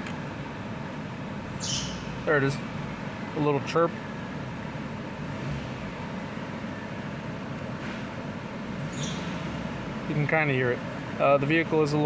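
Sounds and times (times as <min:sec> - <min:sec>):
car engine running: 0:00.0 - 0:12.0
drive belt chirping: 0:08.8 - 0:09.5.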